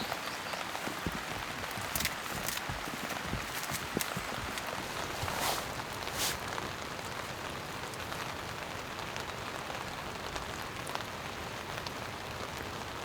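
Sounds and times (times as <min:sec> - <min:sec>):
brief rustle: 0:00.0 - 0:06.7
steady rain falling: 0:00.0 - 0:13.0.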